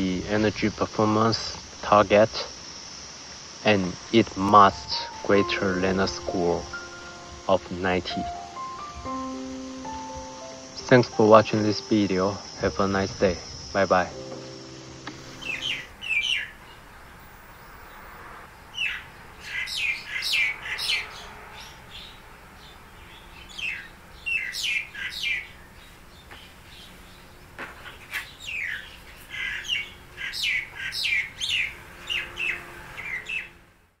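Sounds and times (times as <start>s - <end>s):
birds chirping: 0.0s - 33.8s.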